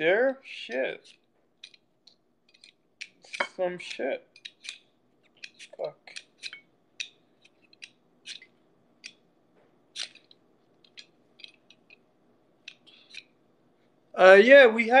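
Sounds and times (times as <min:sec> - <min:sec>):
utensil scraping potatoes: 0:02.5 - 0:09.2, 0:09.9 - 0:12.0, 0:12.7 - 0:13.4.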